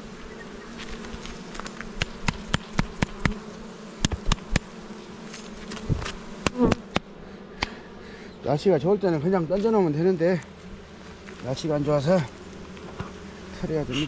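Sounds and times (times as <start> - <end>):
honeybees buzzing: 0.0 - 14.0
hive frames clicking and knocking: 0.9 - 7.8, 12.1 - 13.3.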